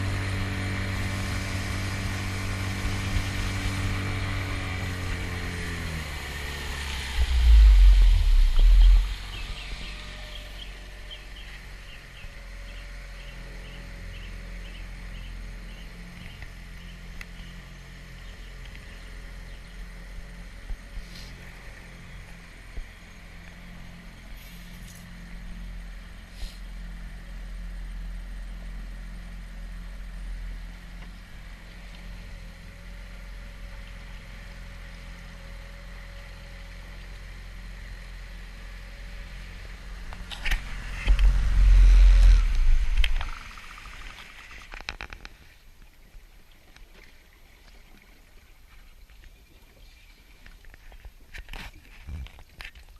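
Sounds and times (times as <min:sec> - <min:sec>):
outboard motor running: 0:00.0 - 0:52.9.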